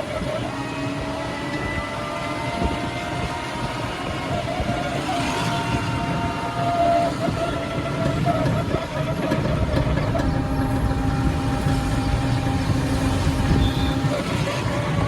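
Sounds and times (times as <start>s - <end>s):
motor engine running: 8.7s - 15.0s.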